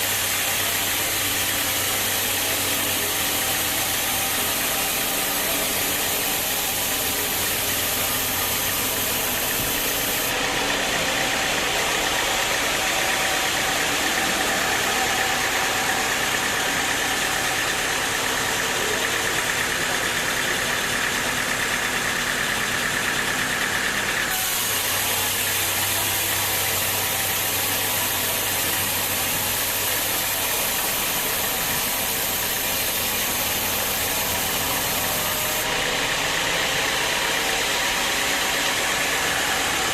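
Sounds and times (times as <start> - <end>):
high whine: 0.0 - 10.5
sawmill machinery drone: 0.0 - 39.9.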